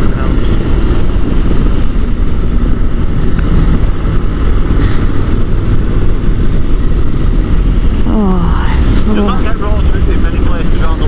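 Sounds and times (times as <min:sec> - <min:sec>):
motorcycle engine hum: 0:00.0 - 0:11.0
wind noise on microphone: 0:00.0 - 0:11.0.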